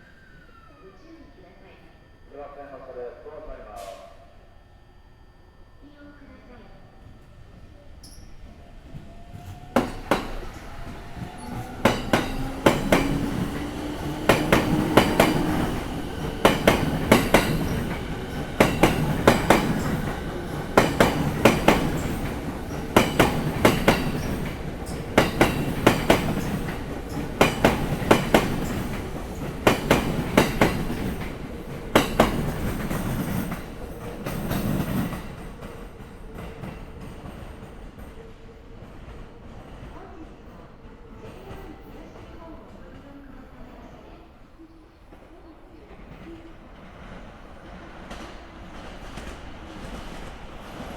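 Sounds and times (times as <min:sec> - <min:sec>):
train motor whine: 0:08.0 - 0:35.1
train wheels clicking over rail joint: 0:09.8 - 0:35.8.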